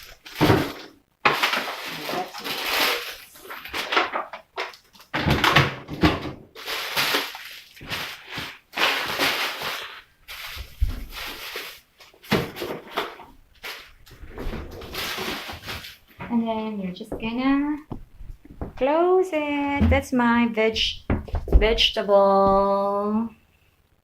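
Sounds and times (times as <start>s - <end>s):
rustling of handled vegetables: 0.0s - 5.2s, 6.5s - 17.9s
short knocks and dull bumps: 17.1s - 18.8s, 21.0s - 21.8s.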